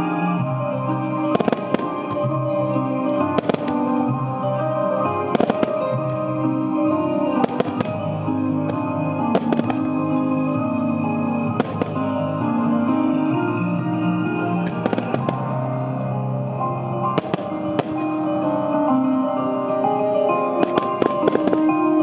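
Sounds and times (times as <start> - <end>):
music with long held notes: 0.0 - 22.0
firework shells bursting: 7.4 - 8.1, 11.5 - 12.1, 17.1 - 18.2.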